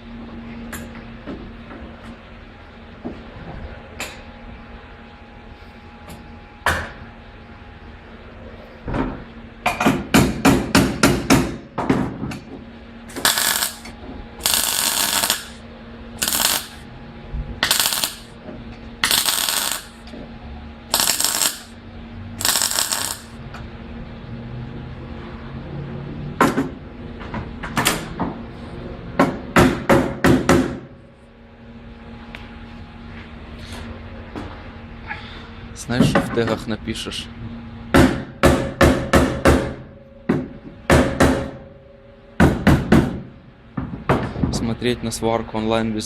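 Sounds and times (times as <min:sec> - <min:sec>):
welding crackling bursts: 0:13.2 - 0:15.6, 0:16.2 - 0:16.8, 0:17.6 - 0:18.3, 0:19.0 - 0:20.0, 0:20.9 - 0:21.8, 0:22.4 - 0:23.4.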